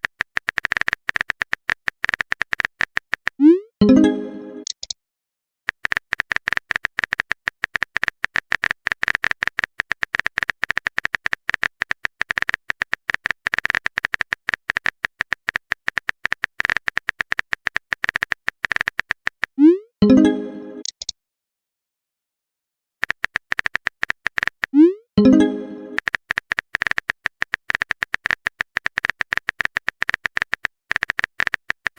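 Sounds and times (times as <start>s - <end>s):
keyboard typing clicks: 0.0s - 5.0s, 5.7s - 21.2s, 23.0s - 31.9s
rising notification chime: 3.8s - 4.6s, 20.0s - 20.9s, 25.2s - 26.0s.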